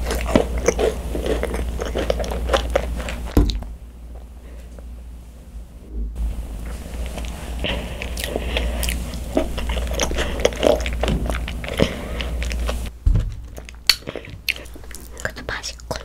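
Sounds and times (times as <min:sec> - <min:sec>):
macaron shell crackling while chewed: 0:00.0 - 0:03.4, 0:06.9 - 0:16.0.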